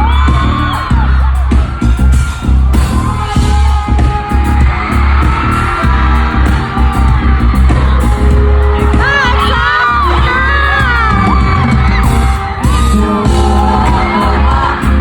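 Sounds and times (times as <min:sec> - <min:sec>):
amplified music with heavy bass: 0:00.0 - 0:15.0
fans cheering: 0:00.0 - 0:15.0
person singing: 0:06.3 - 0:15.0.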